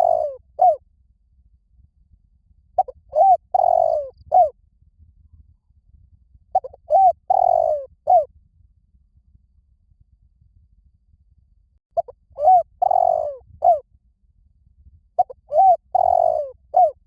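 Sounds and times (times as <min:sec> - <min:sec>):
dove cooing: 0:00.0 - 0:00.8, 0:02.8 - 0:04.5, 0:06.6 - 0:08.3, 0:12.0 - 0:13.8, 0:15.2 - 0:17.0.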